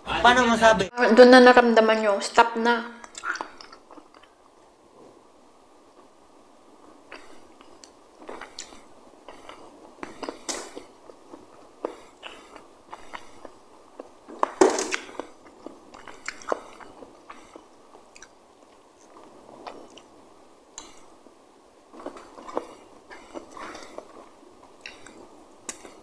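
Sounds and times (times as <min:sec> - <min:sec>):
person chewing: 0:03.0 - 0:04.6, 0:06.9 - 0:21.2, 0:21.9 - 0:26.0.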